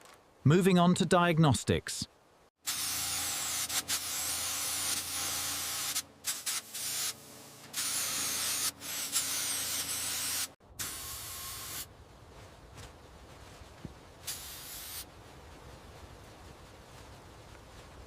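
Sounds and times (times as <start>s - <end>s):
hissing spray bursts: 2.7s - 11.9s, 14.2s - 15.1s.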